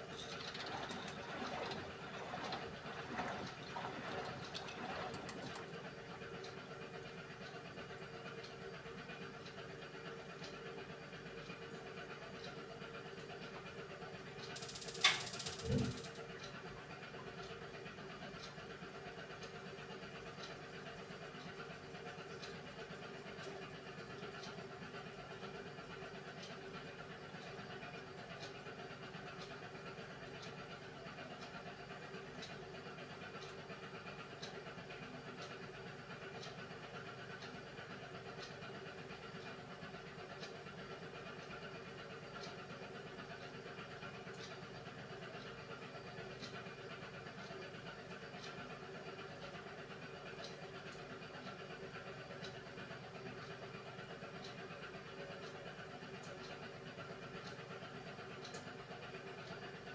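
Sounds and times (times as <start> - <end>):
washing machine motor hum: 0.0 - 6.9, 14.6 - 16.3
washing machine hum: 0.0 - 59.9
faint drum ticks: 14.5 - 16.6.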